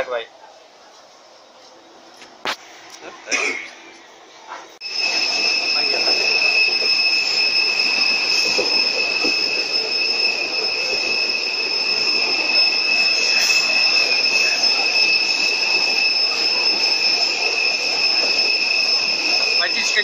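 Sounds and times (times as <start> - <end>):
train rushing noise: 4.2 - 20.0
high-pitched squeal: 4.8 - 20.0.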